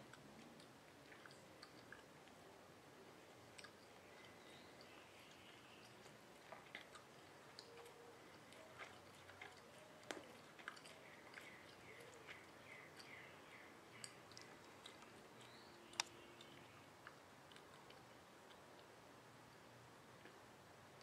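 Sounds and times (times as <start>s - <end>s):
soft clicks: 15.9s - 16.6s.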